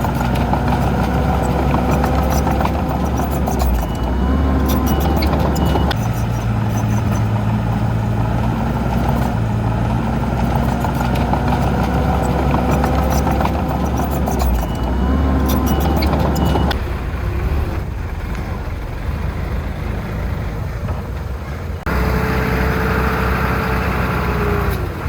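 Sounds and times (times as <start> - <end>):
heavy diesel machinery running: 0.0 - 25.0.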